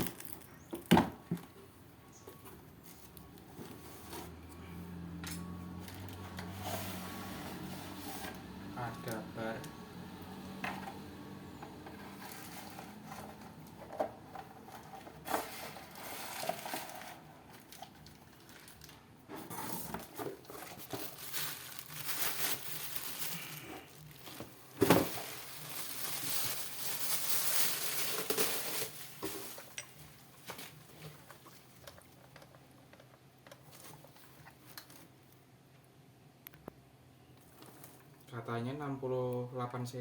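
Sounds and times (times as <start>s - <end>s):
plastic packaging crinkling: 0.0s - 0.7s, 11.2s - 32.1s.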